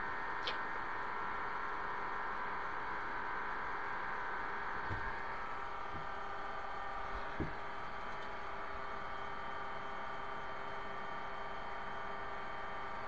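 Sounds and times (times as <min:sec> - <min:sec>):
mechanical hum with fixed tones: 0:00.0 - 0:13.0
faint knock: 0:04.9 - 0:05.2, 0:07.2 - 0:07.7.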